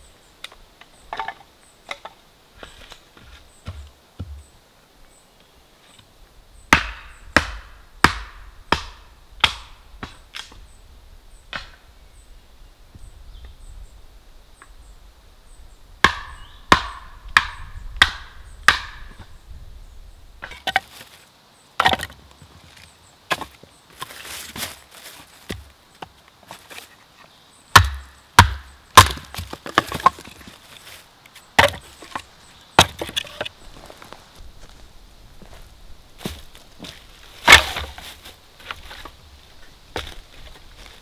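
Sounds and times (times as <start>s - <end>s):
axe chopping firewood: 6.7s - 10.6s, 16.0s - 19.2s, 21.8s - 22.2s, 23.3s - 24.8s, 27.7s - 30.4s, 31.6s - 33.5s, 37.4s - 38.2s.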